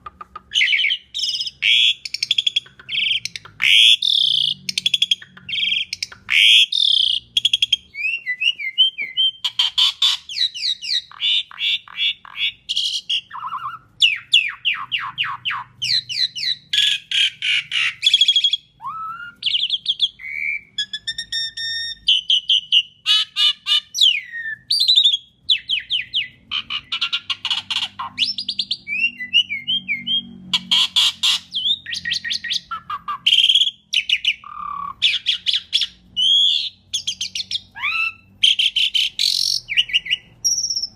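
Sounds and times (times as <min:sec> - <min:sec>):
starling singing: 0:00.0 - 0:40.9.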